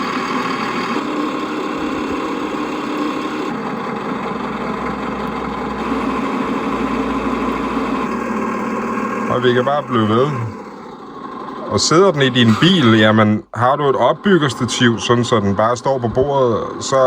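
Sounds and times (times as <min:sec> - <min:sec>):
simulated truck engine through speaker: 0:00.0 - 0:17.0.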